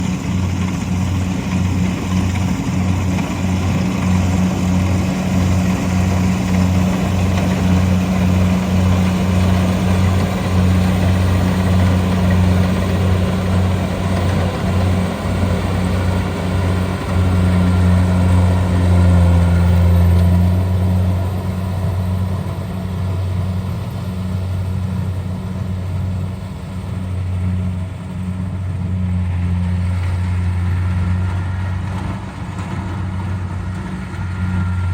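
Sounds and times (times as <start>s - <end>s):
harvester engine humming: 0.0s - 34.9s
machinery rattling and whirring: 0.0s - 34.9s.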